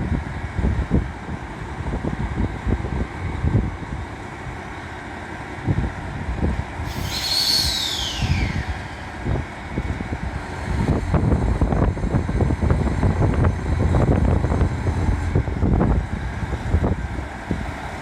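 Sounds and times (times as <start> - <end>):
wind buffeting microphone: 5.6 - 18.0
high whistle-like tone gliding down: 6.9 - 10.0.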